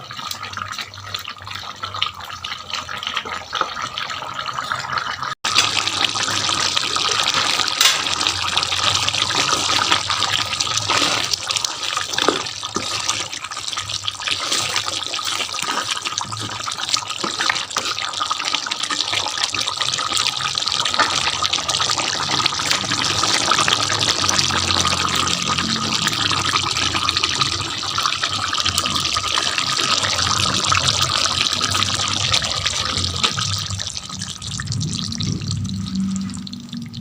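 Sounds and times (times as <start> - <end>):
crackly hiss of bubbling liquid: 5.5 - 37.0.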